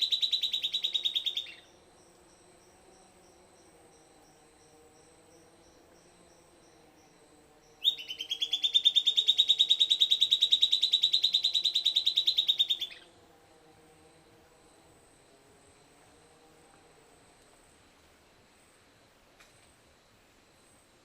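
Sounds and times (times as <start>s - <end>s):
bird singing fast trill: 0.0s - 2.4s, 5.1s - 13.1s.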